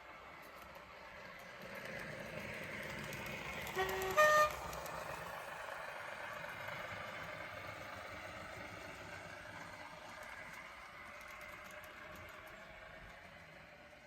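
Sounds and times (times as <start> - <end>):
model trains running: 0.0 - 14.0
two-tone train horn: 3.6 - 4.7.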